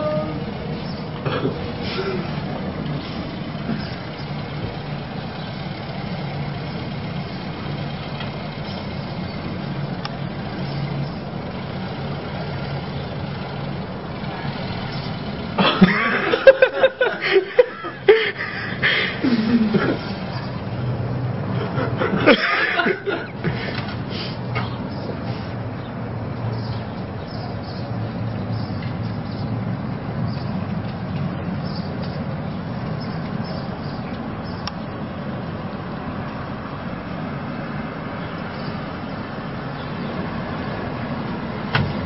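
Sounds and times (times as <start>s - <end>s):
car engine idling: 0.0s - 27.5s
people laughing: 15.6s - 20.2s, 21.5s - 23.9s.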